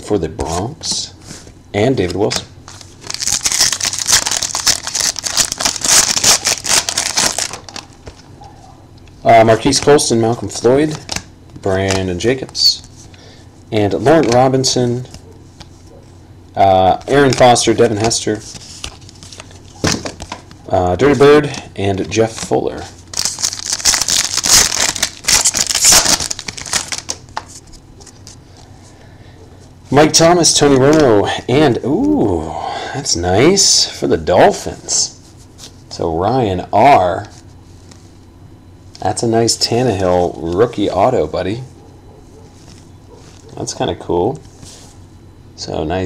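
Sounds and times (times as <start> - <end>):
cards rustling: 1.3 - 8.3, 9.1 - 13.2, 13.9 - 15.9, 16.8 - 28.9
foil wrapper crinkling: 2.7 - 8.3, 23.1 - 28.4.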